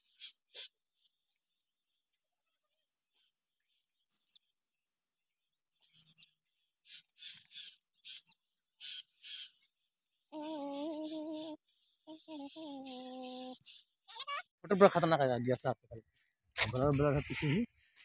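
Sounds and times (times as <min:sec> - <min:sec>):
birds chirping and twittering: 0:00.0 - 0:18.0.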